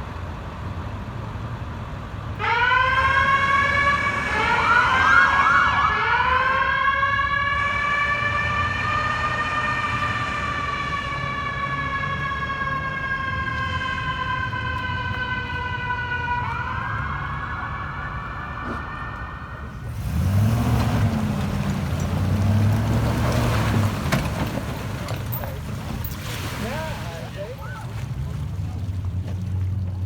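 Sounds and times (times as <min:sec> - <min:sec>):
mechanical siren wailing: 0:02.4 - 0:23.8.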